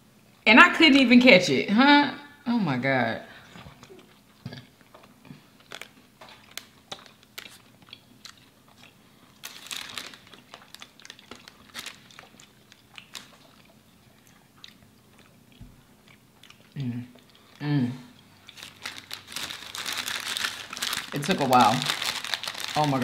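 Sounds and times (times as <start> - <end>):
cookie crunching: 3.8 - 23.0.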